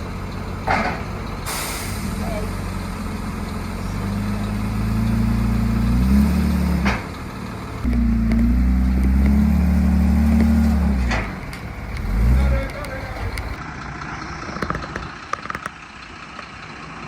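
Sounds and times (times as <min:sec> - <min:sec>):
short hiss: 0:01.5 - 0:02.1.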